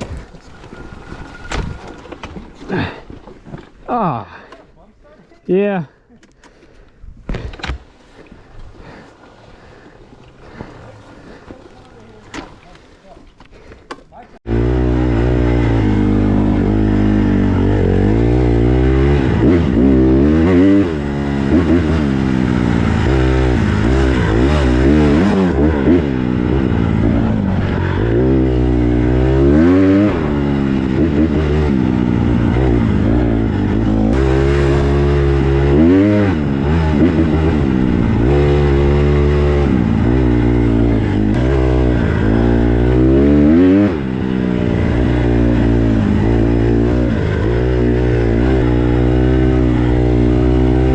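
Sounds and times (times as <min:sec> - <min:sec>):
dirt bike engine revving: 0:14.4 - 0:50.9.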